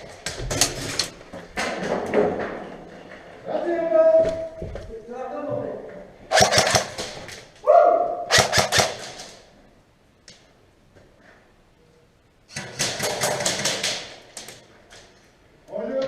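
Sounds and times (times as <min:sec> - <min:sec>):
airsoft gun firing bursts: 0:06.3 - 0:07.2, 0:08.3 - 0:09.4, 0:12.5 - 0:14.2.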